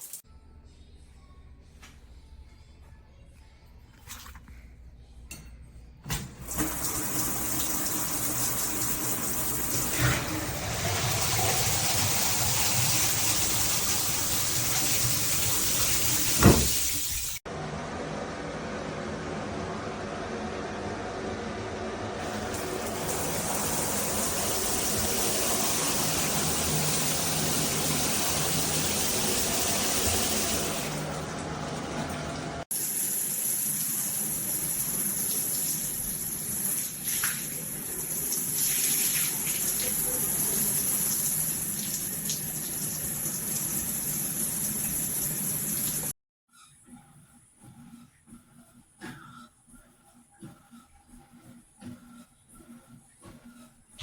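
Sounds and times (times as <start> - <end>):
shower water spraying: 0.0 - 0.2, 6.4 - 17.4, 22.2 - 46.1.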